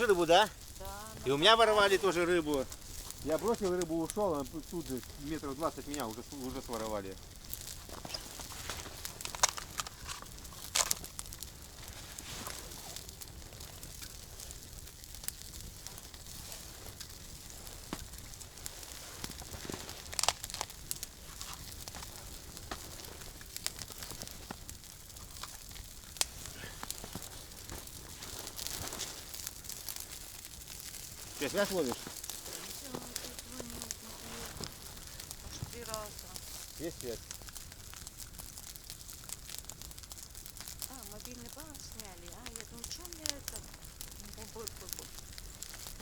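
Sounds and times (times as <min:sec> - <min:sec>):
campfire crackling and popping: 0:00.0 - 0:46.0.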